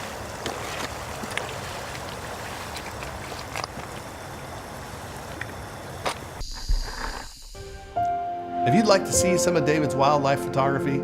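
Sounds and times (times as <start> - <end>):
water rushing: 0.0 - 6.4.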